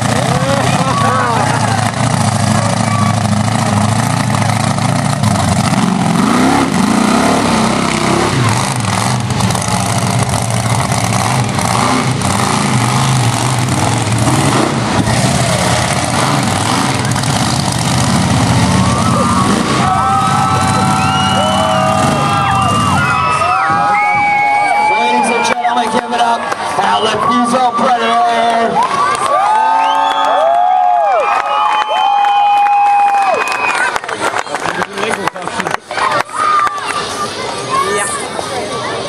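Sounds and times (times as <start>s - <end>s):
crowd shouting: 0.0s - 4.4s, 18.4s - 34.6s, 35.5s - 39.0s
monster truck engine revving: 0.0s - 25.4s.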